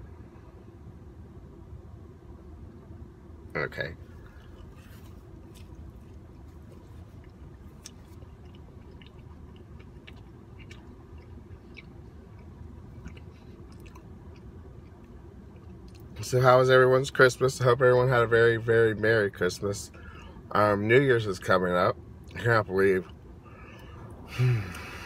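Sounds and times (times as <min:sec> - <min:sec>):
car interior hum: 0:00.0 - 0:25.0
person chewing food: 0:04.2 - 0:16.1.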